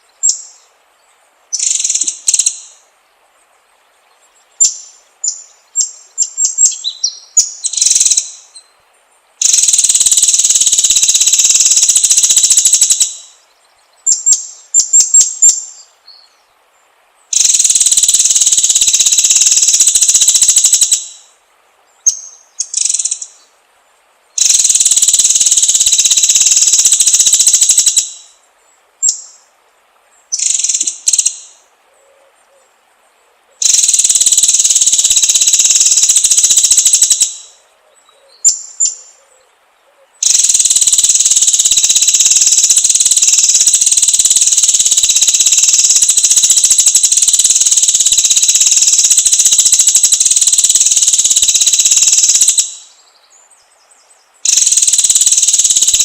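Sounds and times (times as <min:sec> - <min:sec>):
harsh rapid bird trills: 0:01.5 - 0:02.8, 0:04.5 - 0:08.8, 0:09.4 - 0:16.4, 0:17.3 - 0:21.4, 0:22.0 - 0:23.5, 0:24.4 - 0:28.4, 0:29.0 - 0:29.5, 0:30.3 - 0:31.6, 0:33.5 - 0:37.6, 0:40.1 - 0:53.3, 0:54.2 - 0:56.0
bird whistling and chirping: 0:04.6 - 0:08.6.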